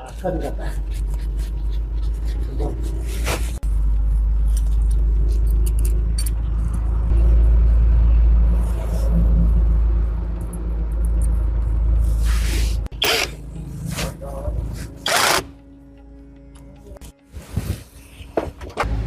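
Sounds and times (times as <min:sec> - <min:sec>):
engine running low rumble: 0:03.5 - 0:15.0.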